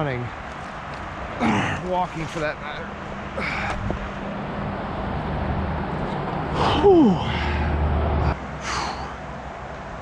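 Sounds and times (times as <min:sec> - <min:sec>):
breathy exhale: 0:03.4 - 0:03.9, 0:08.6 - 0:09.2.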